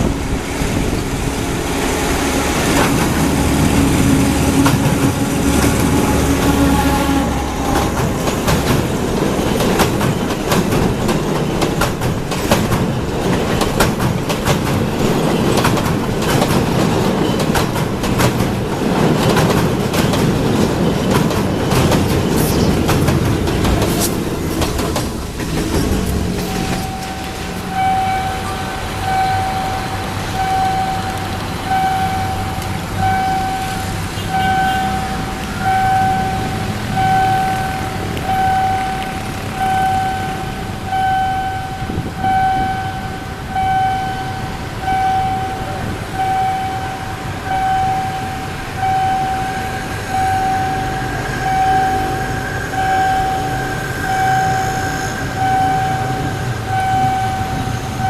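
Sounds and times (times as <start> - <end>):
train rumbling past: 0.0 - 58.0
low rumble: 22.5 - 29.6
electronic warning beeps: 26.5 - 58.0.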